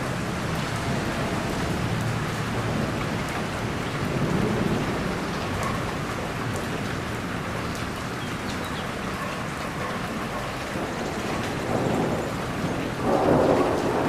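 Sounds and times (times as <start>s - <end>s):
steady rain: 0.0s - 14.0s
low rumble of thunder: 0.1s - 7.5s, 10.8s - 14.0s.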